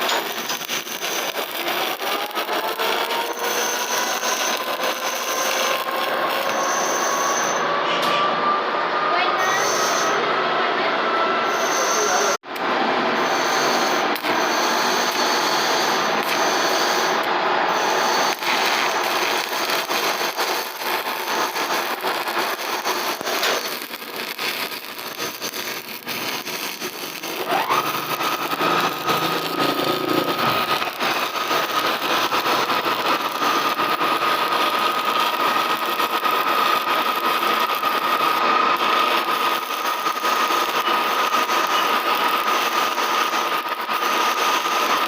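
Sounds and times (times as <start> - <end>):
welding arc crackling: 0.0 - 7.7, 12.0 - 45.0
steady high whine: 0.0 - 45.0.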